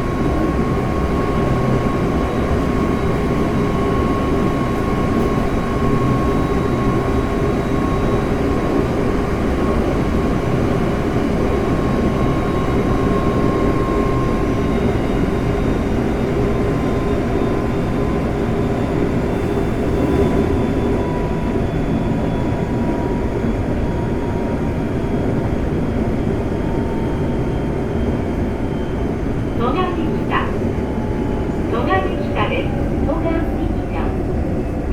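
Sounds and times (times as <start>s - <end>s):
train wheels rumbling on track: 0.0s - 34.9s.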